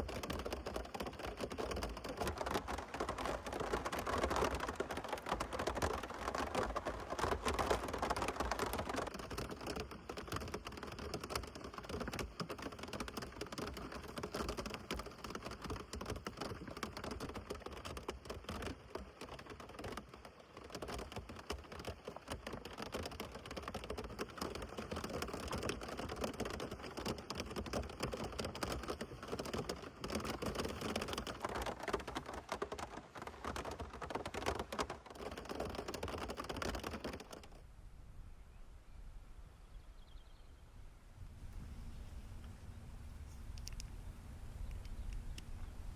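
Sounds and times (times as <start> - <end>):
rain drops on hard surface: 0.0 - 37.6.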